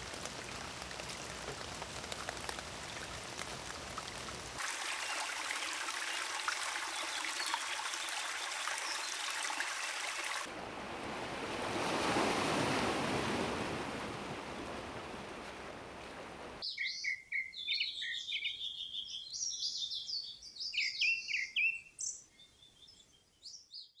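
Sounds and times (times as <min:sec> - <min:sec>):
running water hissing: 0:00.0 - 0:10.5
small birds chirping: 0:05.5 - 0:09.6, 0:16.6 - 0:24.0.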